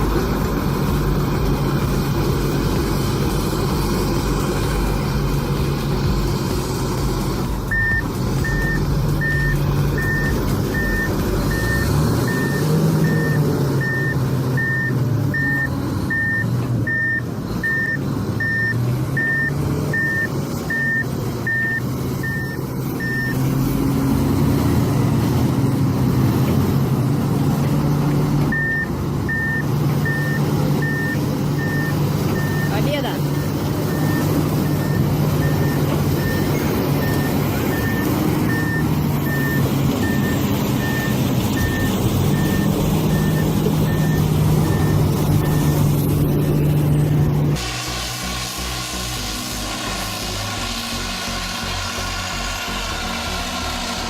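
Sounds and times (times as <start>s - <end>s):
diesel engine running: 0.0s - 54.0s
reversing alarm beeping: 7.7s - 23.6s, 28.5s - 47.3s.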